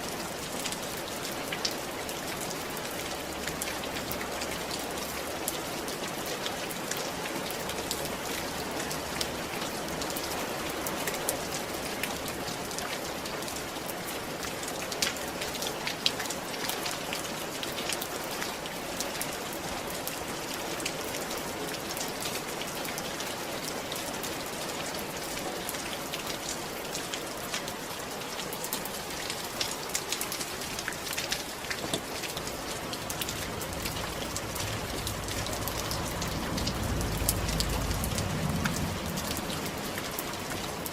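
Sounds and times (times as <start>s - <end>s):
rain falling on a roof: 0.0s - 40.9s
raindrops ticking: 26.1s - 40.9s.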